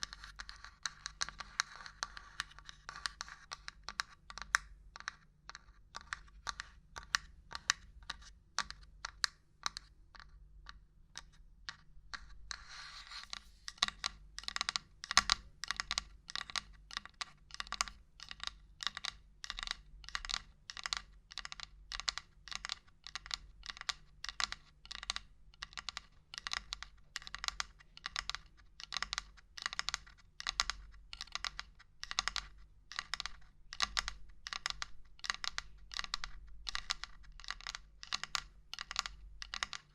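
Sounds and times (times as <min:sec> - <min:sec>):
scratching sound: 0:12.5 - 0:13.8.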